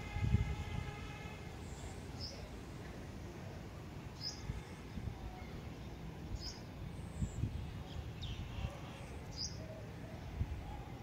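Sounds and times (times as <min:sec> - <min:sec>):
bird chirping: 0:01.6 - 0:02.5, 0:04.2 - 0:10.9.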